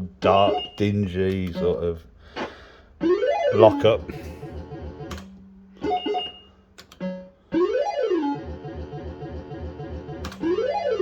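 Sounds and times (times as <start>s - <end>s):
short electronic bleeps: 0.3s - 0.9s
clicks: 5.0s - 7.1s, 10.1s - 10.6s
synthesized tune over pulsing beat: 7.0s - 11.0s.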